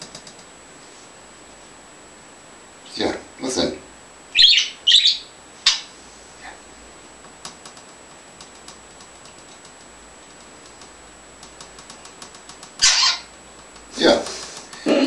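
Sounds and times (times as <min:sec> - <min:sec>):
bird chirping: 0:04.4 - 0:05.9, 0:12.8 - 0:13.3.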